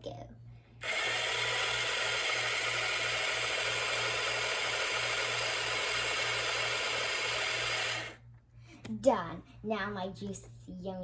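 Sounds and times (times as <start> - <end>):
toy blender motor whirring: 0.8 - 8.2.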